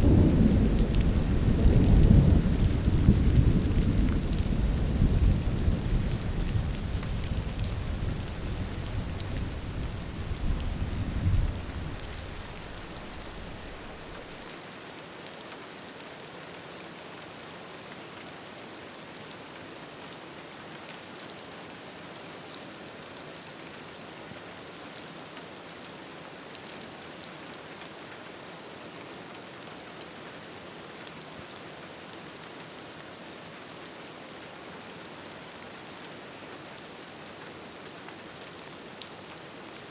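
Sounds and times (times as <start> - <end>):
thunder rumbling: 0.0 - 14.4
steady rain: 0.0 - 39.9.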